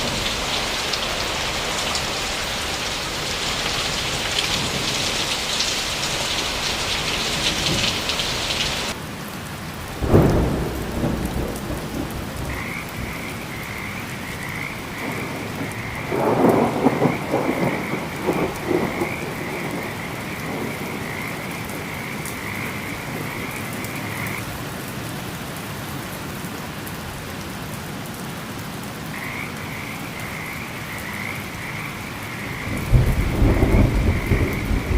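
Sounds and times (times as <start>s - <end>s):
thunder cracking and rumbling: 0.0s - 9.0s, 10.0s - 24.4s, 31.6s - 34.9s
heavy rain falling: 0.0s - 34.9s
frog chorus croaking: 10.6s - 24.4s, 29.0s - 34.9s.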